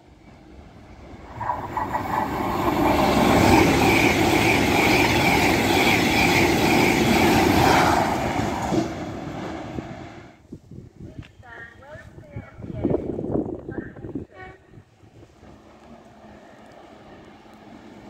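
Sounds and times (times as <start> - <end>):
high-speed train passing: 0.0 - 10.4, 12.9 - 18.0.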